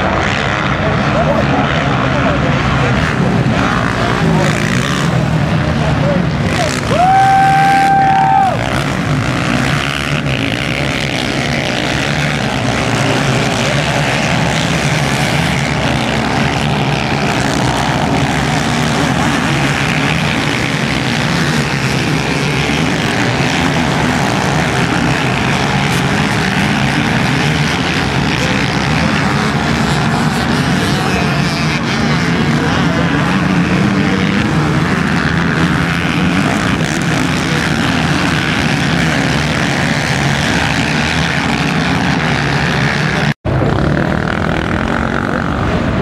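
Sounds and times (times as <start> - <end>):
dirt bike engines droning: 0.0 - 46.0.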